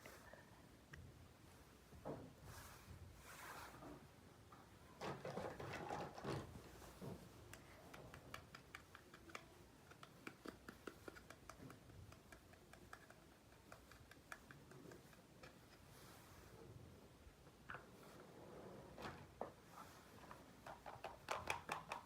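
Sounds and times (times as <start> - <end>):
faint light clicks and taps: 6.9 - 16.1.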